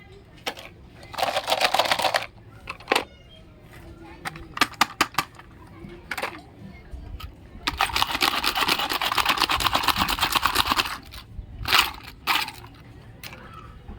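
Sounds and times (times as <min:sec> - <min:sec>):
rapid clicking rattle: 0:07.6 - 0:13.4.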